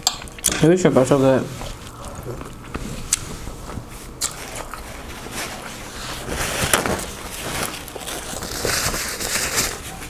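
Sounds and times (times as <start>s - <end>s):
person chewing: 1.6s - 6.0s.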